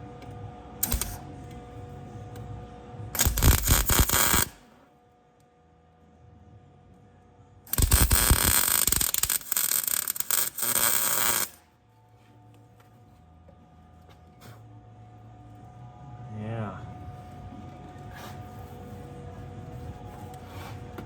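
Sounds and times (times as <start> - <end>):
arc welding crackle: 0.8 - 1.2, 3.2 - 4.7, 7.7 - 11.6.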